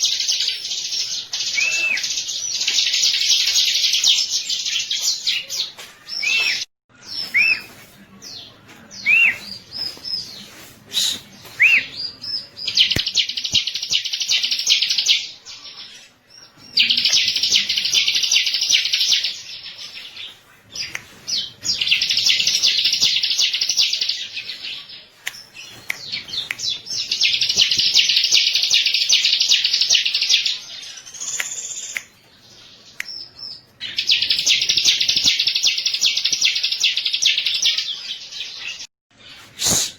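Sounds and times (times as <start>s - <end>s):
short bird chirps: 39.3s - 39.9s.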